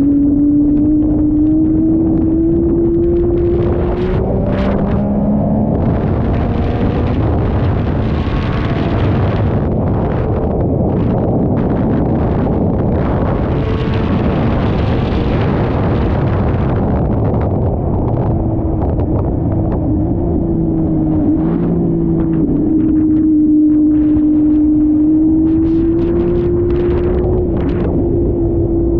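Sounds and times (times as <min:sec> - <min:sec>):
motorcycle engine rumbling: 0:00.0 - 0:28.9
wind noise on microphone: 0:00.0 - 0:28.9.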